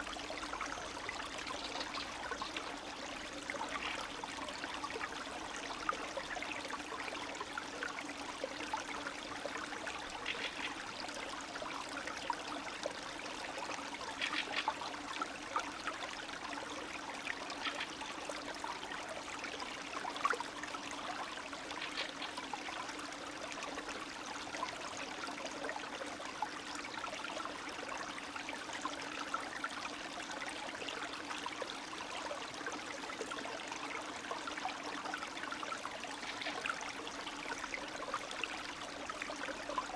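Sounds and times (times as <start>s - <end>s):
small water splashes: 0.0s - 28.3s
stream trickling and babbling: 0.0s - 39.9s.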